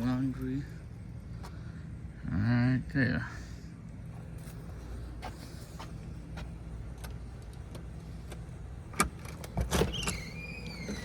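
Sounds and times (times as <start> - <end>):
low mechanical hum: 0.0 - 11.0
falling squeak: 9.8 - 11.0.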